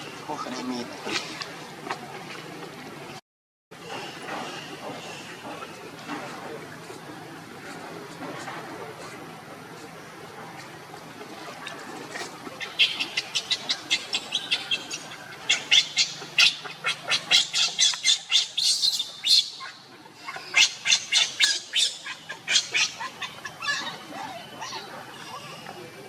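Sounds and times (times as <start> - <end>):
animal high-pitched calls: 12.6 - 25.6.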